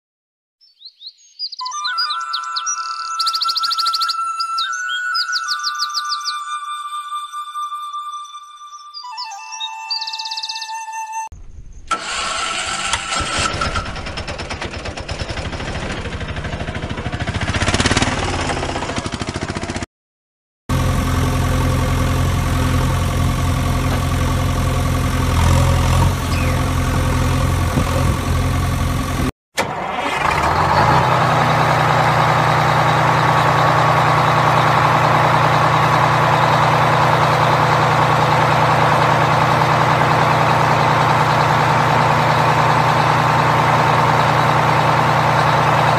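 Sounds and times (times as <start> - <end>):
vehicle engine idling: 12.0 - 19.8, 20.7 - 29.3, 29.9 - 45.9.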